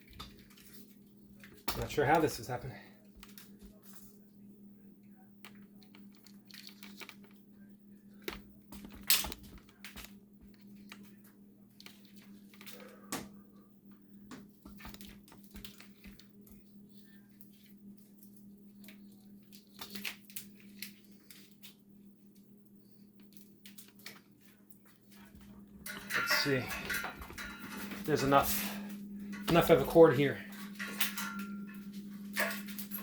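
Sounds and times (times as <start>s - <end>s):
steady low hum: 0.0s - 33.0s
cord rustling and clicking: 5.4s - 7.4s, 8.1s - 12.8s, 14.6s - 21.8s.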